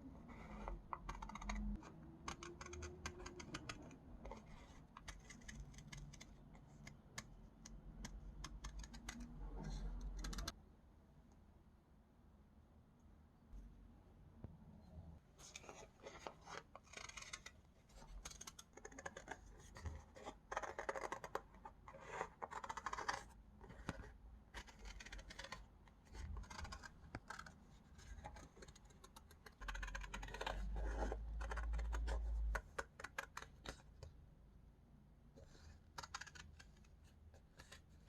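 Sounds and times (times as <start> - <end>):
paper rustling and scratching: 15.4 - 33.9, 35.4 - 38.0.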